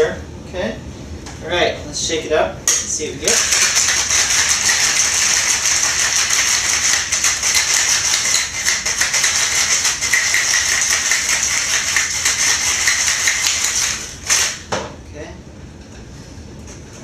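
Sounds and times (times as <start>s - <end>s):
ice rattling in cocktail shaker: 3.3s - 14.4s.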